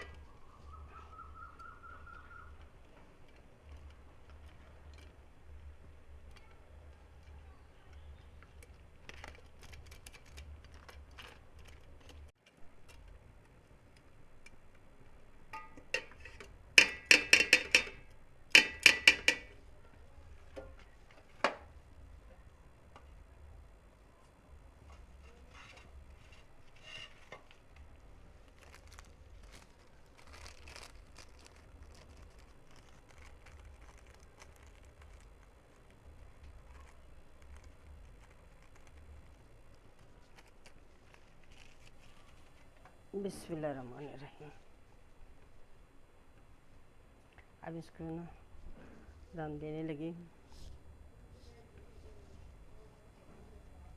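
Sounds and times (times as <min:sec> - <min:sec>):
metal utensil clattering on a pot: 0:15.5 - 0:18.0, 0:18.6 - 0:19.5.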